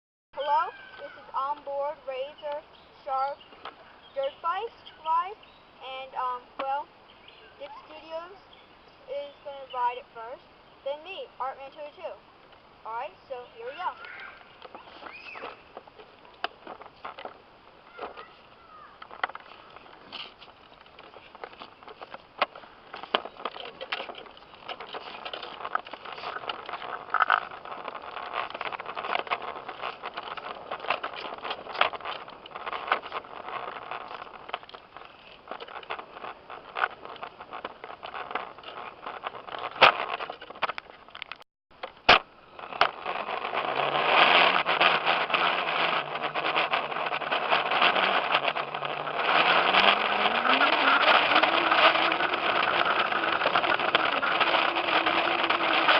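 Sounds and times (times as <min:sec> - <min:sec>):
noisy rush: 0:00.4 - 0:55.9
dirt bike motor hum: 0:12.9 - 0:55.9
rattling knocks and scraping: 0:13.2 - 0:55.9.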